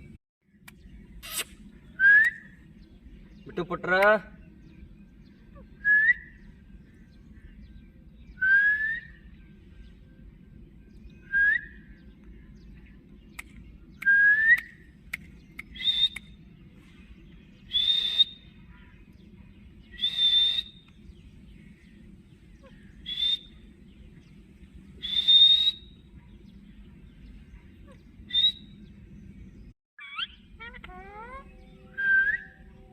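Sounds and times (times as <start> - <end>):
parrot whistled calls: 17.7 - 18.5, 19.9 - 20.8, 23.0 - 23.6, 25.0 - 26.0, 28.3 - 28.8, 30.0 - 32.6.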